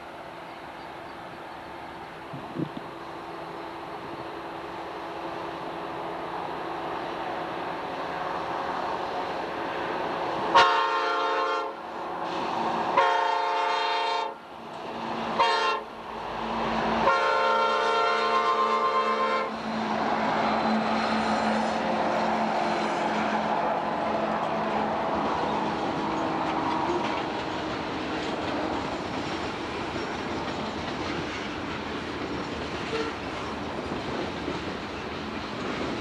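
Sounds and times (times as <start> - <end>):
train engines and rolling noise: 0.0 - 36.0
locomotive horn blasts: 10.5 - 11.8, 13.0 - 14.4, 15.4 - 15.9, 17.1 - 19.6, 32.9 - 33.2.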